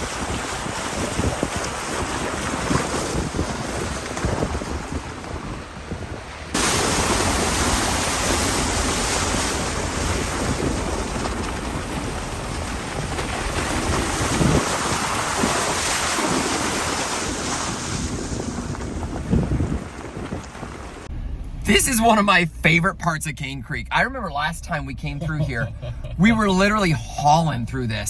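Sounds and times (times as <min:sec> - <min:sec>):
low rumble: 0:17.8 - 0:28.0.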